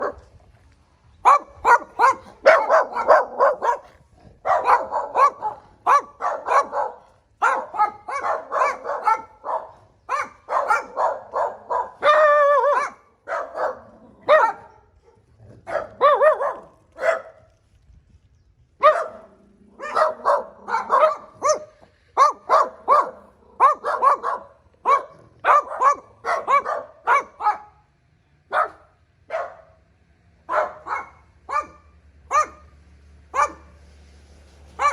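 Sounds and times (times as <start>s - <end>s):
dog barking: 0.0s - 0.3s, 1.2s - 17.4s, 18.8s - 27.8s, 28.5s - 29.8s, 30.5s - 32.7s, 33.4s - 33.8s
dog howling: 11.9s - 12.9s.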